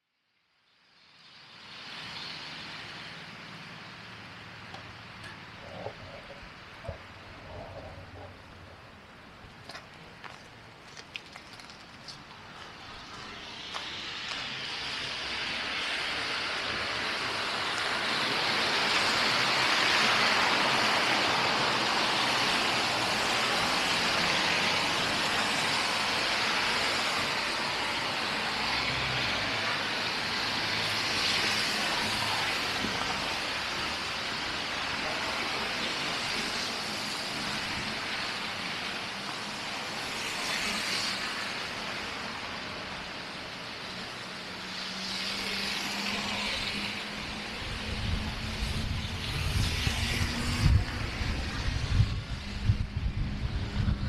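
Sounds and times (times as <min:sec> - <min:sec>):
road traffic passing: 0:00.9 - 0:54.0.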